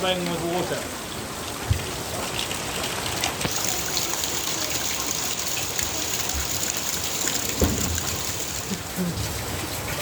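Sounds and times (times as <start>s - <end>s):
water gushing from containers: 0.0s - 10.0s
heavy rain pouring: 3.2s - 10.0s.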